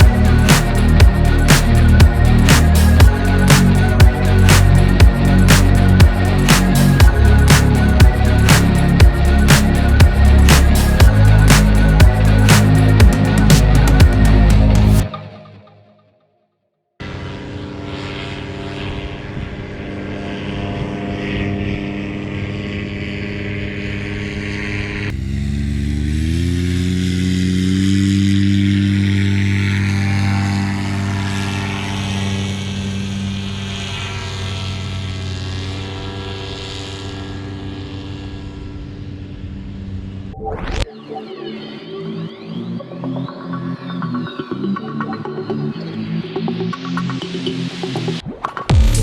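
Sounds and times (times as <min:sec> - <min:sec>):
paramotor engine and propeller: 0:17.0 - 0:40.4.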